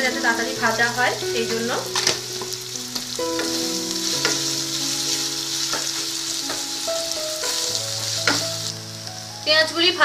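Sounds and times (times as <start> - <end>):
onion sizzling in hot oil: 0.0 - 10.0.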